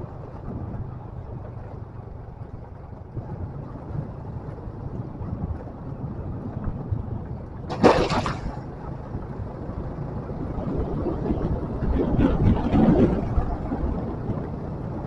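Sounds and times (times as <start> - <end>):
motorcycle engine rumbling: 0.0 - 15.0
wind on microphone: 0.0 - 15.0.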